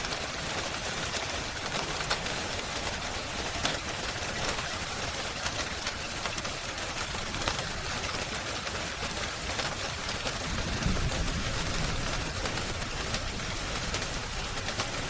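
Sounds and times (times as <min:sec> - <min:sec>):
rain hiss: 0:00.0 - 0:15.0
fire crackling: 0:08.9 - 0:15.0.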